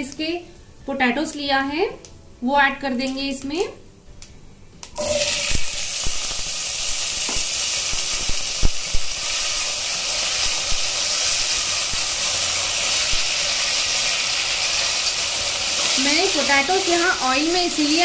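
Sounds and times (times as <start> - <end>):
potatoes sizzling in hot oil: 5.0 - 18.0.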